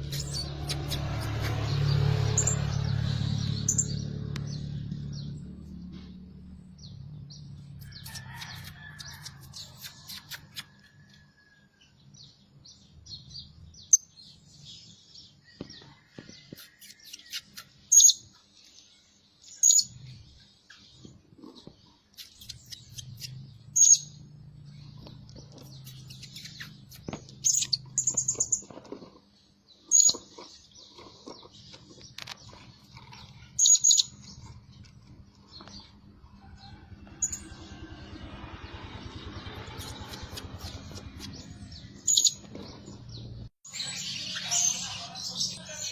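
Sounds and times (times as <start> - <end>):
parrot chirping: 0.0 - 2.7.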